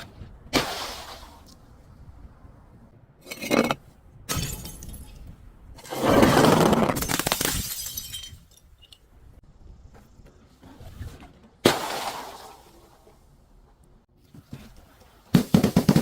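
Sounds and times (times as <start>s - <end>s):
glass bottles breaking: 4.3s - 5.2s, 6.2s - 8.8s.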